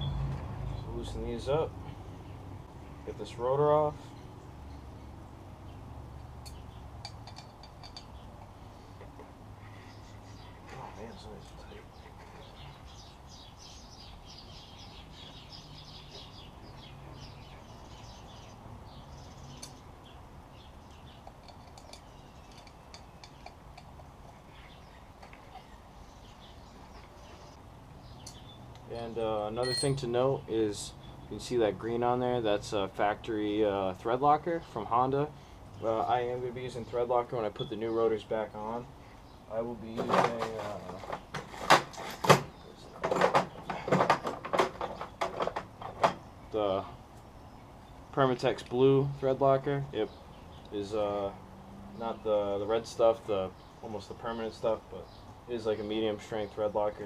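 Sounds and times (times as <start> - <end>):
small birds chirping: 0.0 - 41.6, 42.2 - 57.0
hand tools clicking and knocking: 6.4 - 8.5, 21.2 - 24.2, 39.9 - 46.2.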